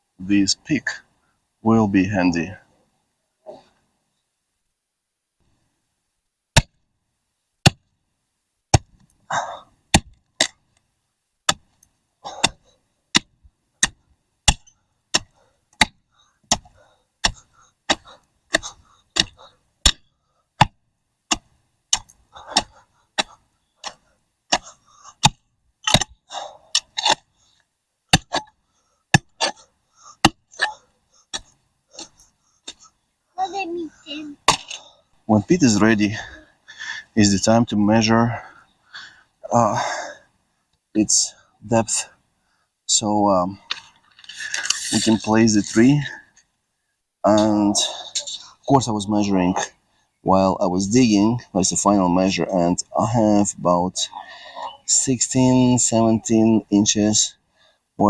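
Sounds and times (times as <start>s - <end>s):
pick striking clay soil: 8.7s - 9.2s, 9.9s - 10.6s, 11.4s - 27.2s
loose dirt crumbling: 8.7s - 42.3s, 43.0s - 46.6s.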